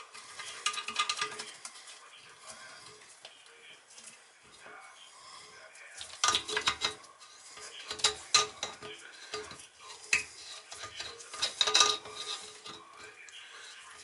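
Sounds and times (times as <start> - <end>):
metal hardware clinking and rattling: 10.8 - 12.8.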